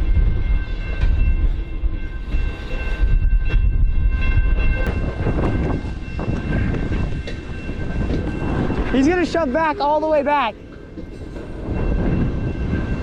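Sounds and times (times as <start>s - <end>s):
freight train rumble: 0.0s - 13.0s.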